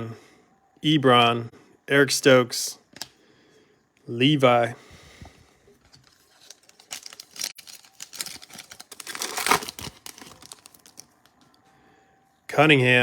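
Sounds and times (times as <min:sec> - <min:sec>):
foil wrapper crinkling and tearing: 0:06.0 - 0:11.3.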